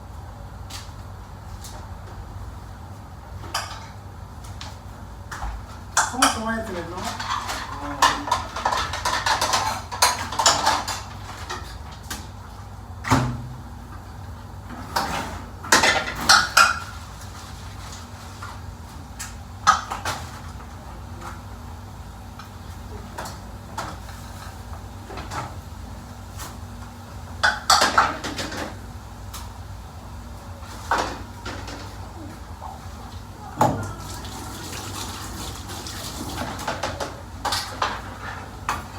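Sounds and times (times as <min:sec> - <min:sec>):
pots and pans clanking: 0:06.0 - 0:12.4, 0:14.7 - 0:18.6, 0:27.4 - 0:28.8, 0:30.6 - 0:38.9.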